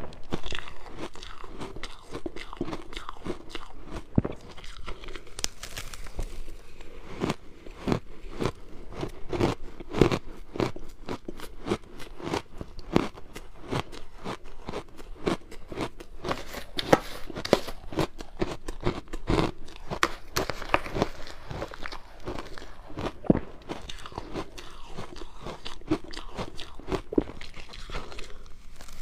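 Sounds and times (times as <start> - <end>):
person crunching ice: 0.0 - 29.0.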